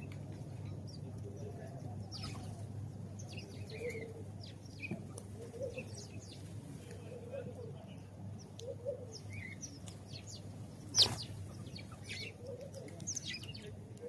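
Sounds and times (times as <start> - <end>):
sparrows chirping: 0.0 - 14.0
dove cooing: 3.6 - 4.4, 5.3 - 6.1, 7.0 - 7.8, 8.6 - 9.6, 11.0 - 14.0.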